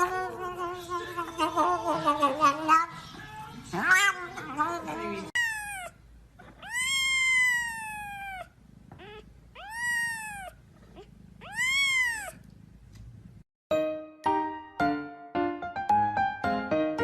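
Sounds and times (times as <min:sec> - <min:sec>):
cat meowing: 0:03.3 - 0:12.4
piano music: 0:13.7 - 0:17.0.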